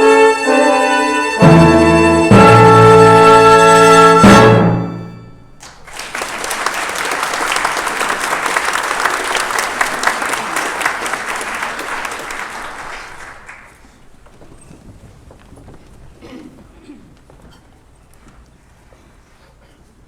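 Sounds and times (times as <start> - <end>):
audience applauding: 5.6 - 14.1.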